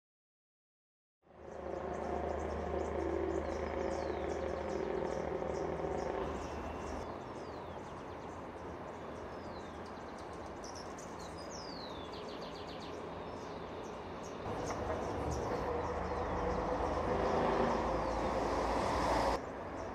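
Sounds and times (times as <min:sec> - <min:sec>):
birds chirping and whistling: 0:01.6 - 0:07.8, 0:14.5 - 0:19.4.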